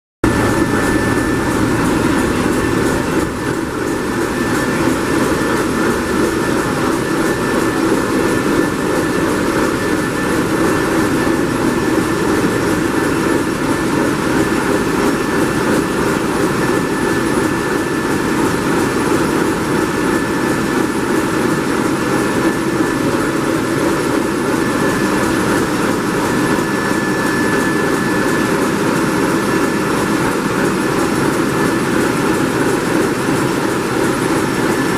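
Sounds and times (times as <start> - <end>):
faint high whine: 0.2 - 13.5
marine diesel engine running: 0.2 - 34.9.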